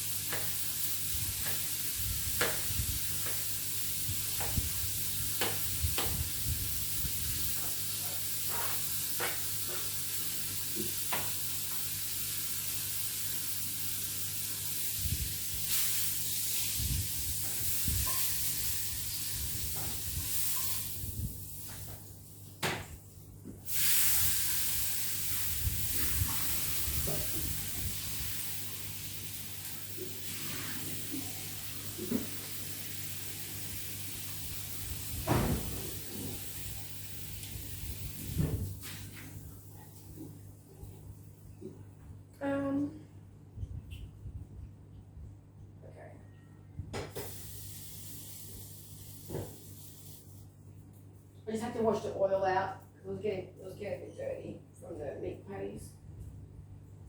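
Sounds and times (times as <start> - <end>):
meat sizzling in a frying pan: 0.0 - 21.8, 23.7 - 38.4, 47.2 - 50.2.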